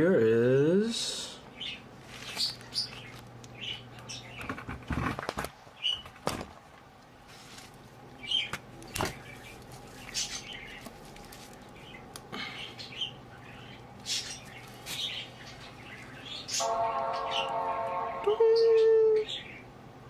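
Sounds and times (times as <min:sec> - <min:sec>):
bird chirping: 0:01.6 - 0:04.6, 0:08.2 - 0:10.9, 0:11.7 - 0:19.7.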